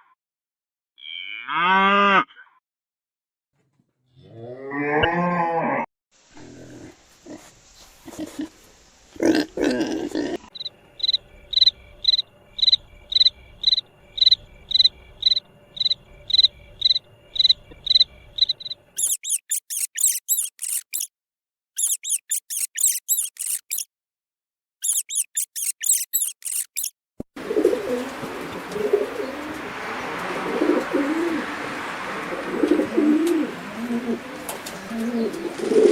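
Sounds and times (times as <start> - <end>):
very high-pitched squeaking chirps: 10.6 - 21.1, 21.8 - 23.9, 24.8 - 26.9
repeated high chirp: 18.4 - 21.1, 21.8 - 23.9, 24.8 - 26.9.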